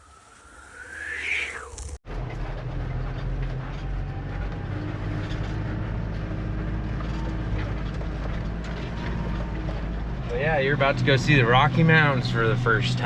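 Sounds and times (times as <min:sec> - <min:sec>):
road noise: 0:00.0 - 0:13.0
truck engine droning: 0:00.0 - 0:13.0.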